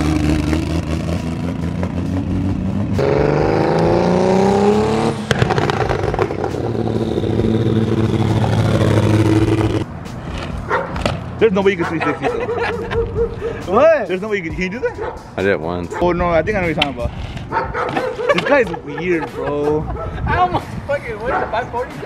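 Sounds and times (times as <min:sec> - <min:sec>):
car engine accelerating: 0:00.0 - 0:10.7.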